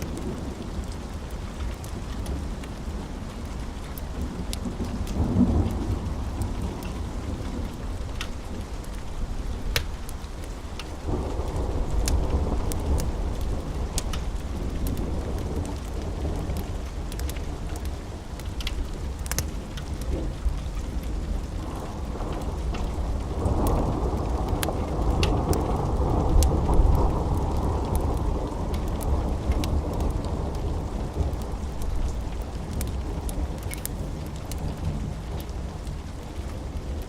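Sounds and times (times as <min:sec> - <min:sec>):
steady rain: 0:00.0 - 0:37.0
wood fire crackling: 0:00.0 - 0:37.0
rolling thunder: 0:10.9 - 0:17.9, 0:20.0 - 0:37.0.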